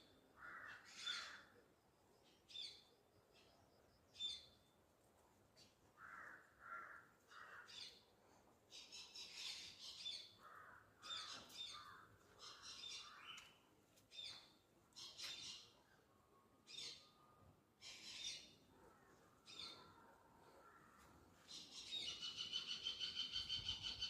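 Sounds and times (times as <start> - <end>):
high-pitched bird calls: 21.5 - 24.0.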